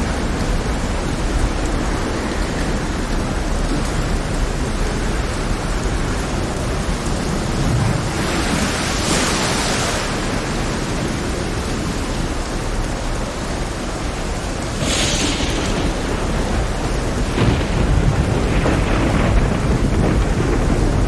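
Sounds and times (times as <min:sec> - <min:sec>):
heavy rain: 0:00.0 - 0:21.0
rough sea surf: 0:00.0 - 0:21.0.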